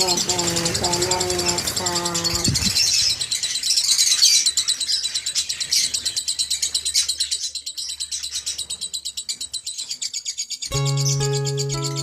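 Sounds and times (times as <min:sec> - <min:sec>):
lovebirds chirping: 0:00.0 - 0:12.0.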